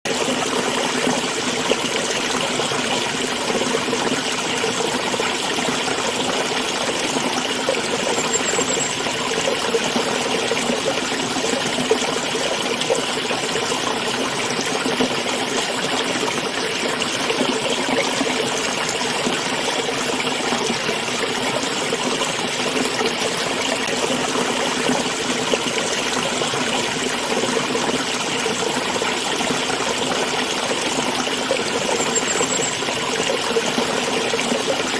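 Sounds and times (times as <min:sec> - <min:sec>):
stream trickling: 0:00.1 - 0:34.9.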